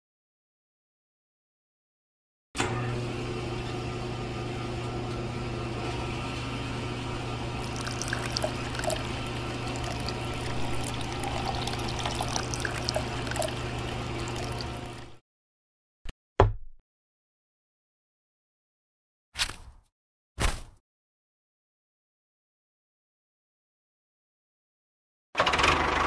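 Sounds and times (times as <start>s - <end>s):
electric pump motor humming: 7.2s - 15.2s
water splashing and trickling: 7.6s - 15.2s.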